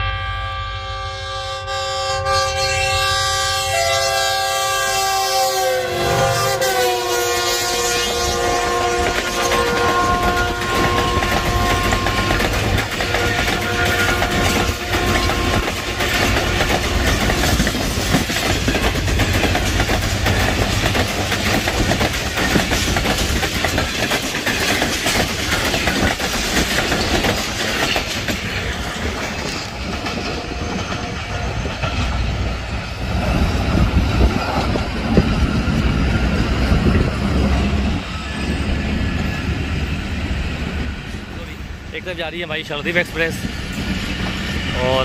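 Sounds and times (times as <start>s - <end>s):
train horn: 0.0s - 17.6s
train passing at speed: 0.0s - 45.0s
wheels clattering over rail joints: 9.1s - 37.5s.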